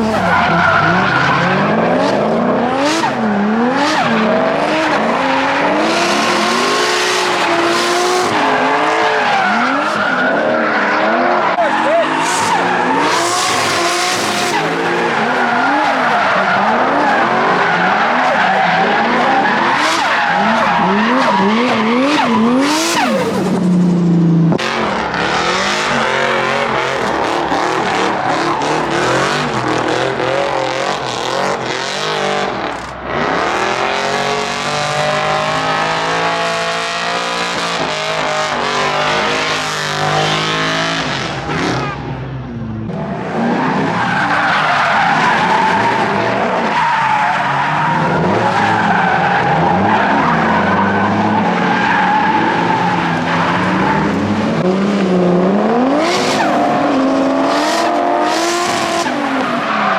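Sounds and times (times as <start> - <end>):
tyres screeching: 0.0 - 1.8, 5.0 - 24.0, 25.4 - 33.8
car engines revving: 0.0 - 59.9.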